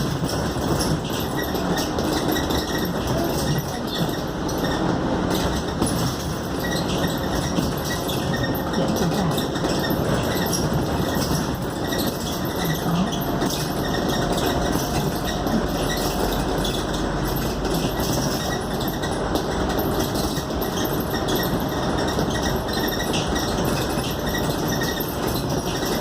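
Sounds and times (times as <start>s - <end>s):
bus engine and road noise: 0.0s - 26.0s.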